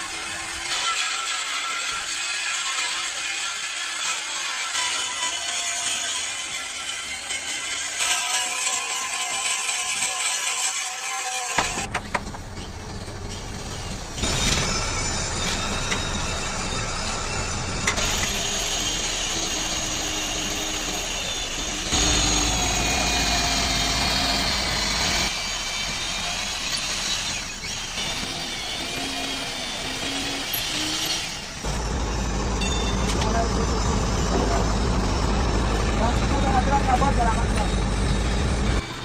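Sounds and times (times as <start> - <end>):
vehicle engine running: 31.6 - 38.8.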